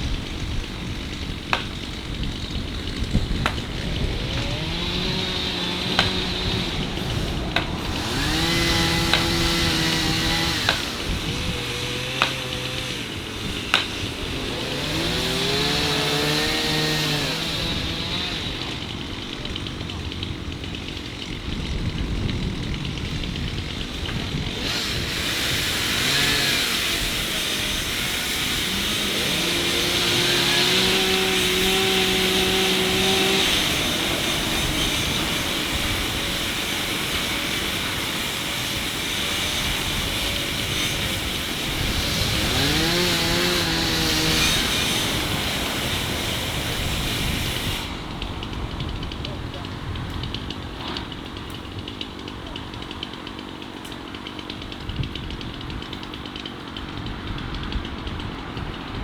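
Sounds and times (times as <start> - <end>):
tractor engines running: 0.0 - 59.0.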